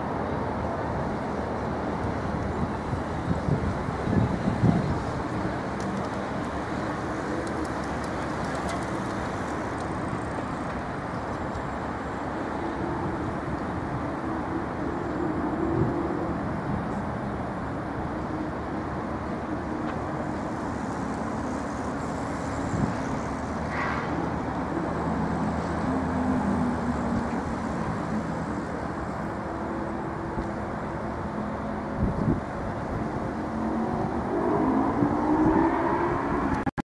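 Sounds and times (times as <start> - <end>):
road traffic hum: 0.0 - 36.8
vehicle engines passing: 1.1 - 36.8
engine speeding up: 33.2 - 36.7.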